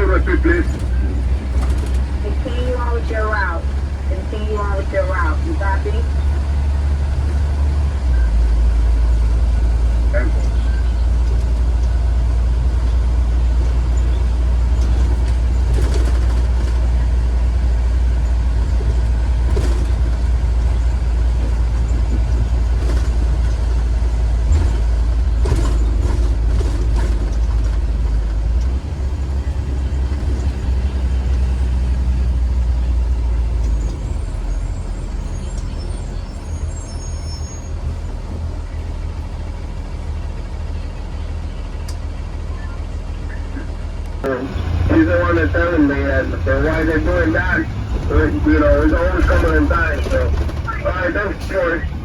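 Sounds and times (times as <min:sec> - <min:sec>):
bus engine and road rumble: 0:00.0 - 0:52.0
knocks and rattles: 0:13.5 - 0:17.4, 0:18.2 - 0:31.8, 0:46.7 - 0:51.5.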